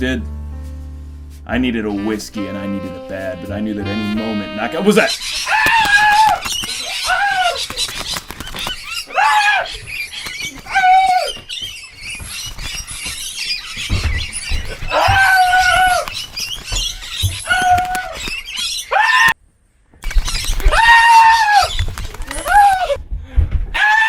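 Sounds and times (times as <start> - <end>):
bird crying: 5.0 - 19.4, 20.1 - 23.0.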